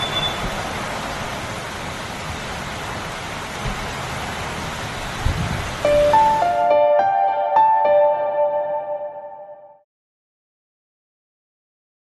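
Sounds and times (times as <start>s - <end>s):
heavy rain on street: 0.0s - 7.1s.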